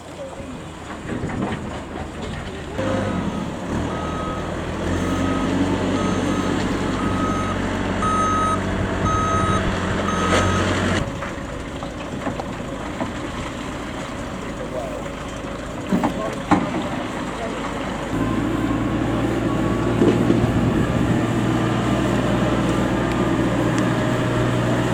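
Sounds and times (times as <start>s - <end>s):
vehicle engine running: 0.0s - 24.9s
reversing alarm beeping: 2.8s - 11.0s.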